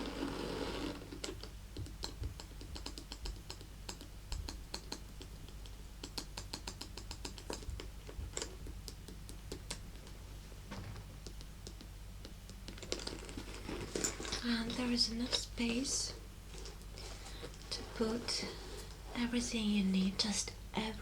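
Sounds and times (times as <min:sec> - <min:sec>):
fingernails tapping on handbag: 0:10.8 - 0:14.4.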